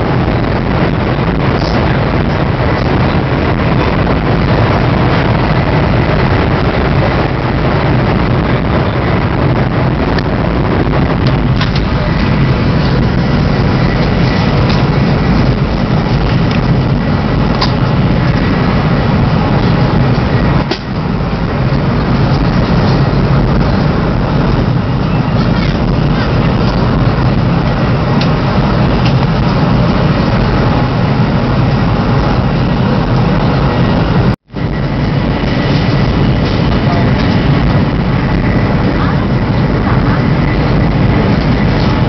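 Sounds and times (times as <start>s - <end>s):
train cabin rumble and rush: 0.0s - 42.0s.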